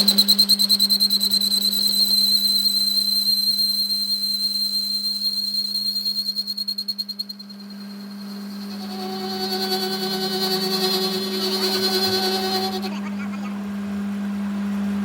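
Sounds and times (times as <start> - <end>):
high-pitched pulsing whistle: 0.0 - 13.0
steady low hum: 6.4 - 15.0.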